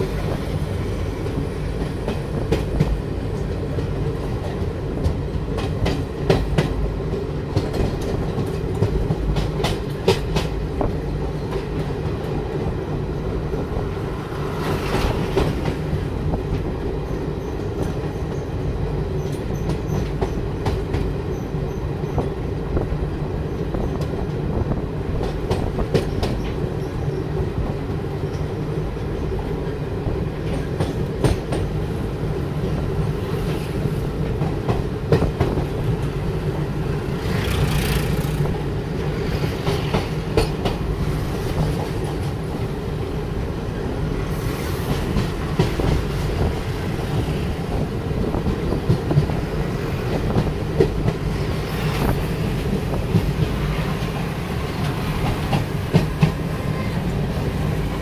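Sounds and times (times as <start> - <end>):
wheels clacking over rail joints: 0.0 - 12.8, 25.1 - 27.2, 32.6 - 43.2, 44.9 - 58.0
train rumbling on board: 0.0 - 58.0.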